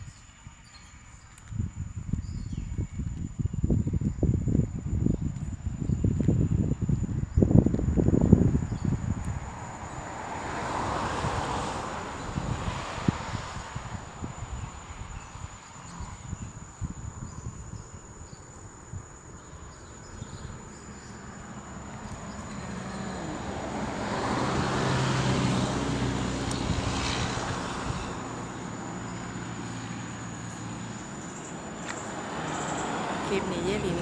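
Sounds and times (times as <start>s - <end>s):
wind buffeting microphone: 0.0s - 32.2s
engine passing by: 8.2s - 16.4s, 19.9s - 34.0s.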